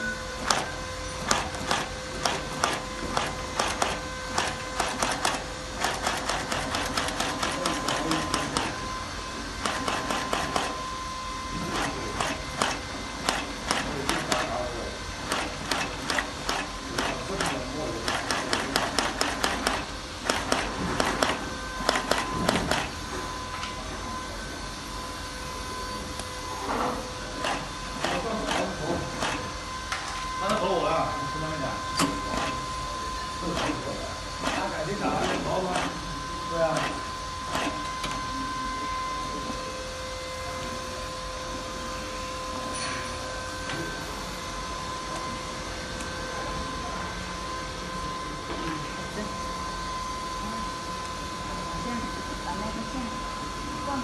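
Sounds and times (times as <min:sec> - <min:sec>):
machine hum: 0:00.0 - 0:54.0
machine clicking: 0:00.4 - 0:08.8, 0:09.6 - 0:10.7, 0:11.8 - 0:14.5, 0:15.3 - 0:22.9.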